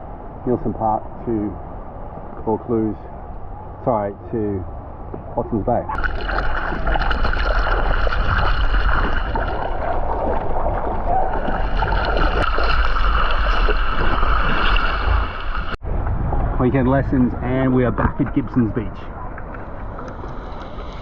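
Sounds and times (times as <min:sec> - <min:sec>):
wind rumbling on microphone: 0:04.6 - 0:21.0
water splashing around kayak: 0:06.0 - 0:15.8.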